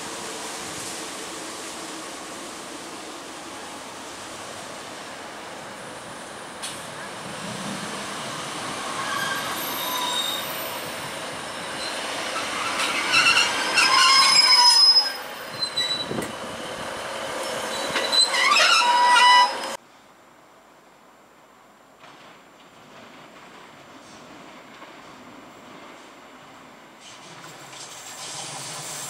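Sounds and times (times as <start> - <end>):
train pulling in and braking: 0.0 - 20.1, 21.7 - 29.0
high-pitched wheel and brake squeal: 8.8 - 10.9, 11.5 - 16.5, 17.4 - 19.8.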